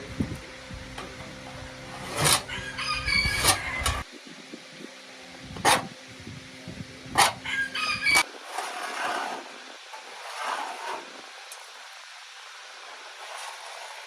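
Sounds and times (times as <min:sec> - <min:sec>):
steady low hum: 0:00.0 - 0:14.0
rooster crowing: 0:02.4 - 0:04.0, 0:07.4 - 0:08.3.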